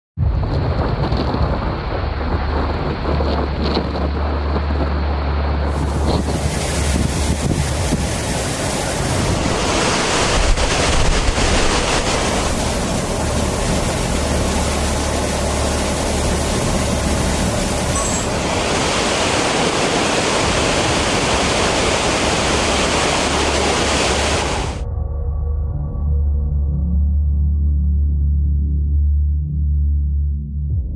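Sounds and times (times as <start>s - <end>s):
hurricane wind and water rushing: 0.2s - 24.8s
low steady hum: 10.3s - 19.8s.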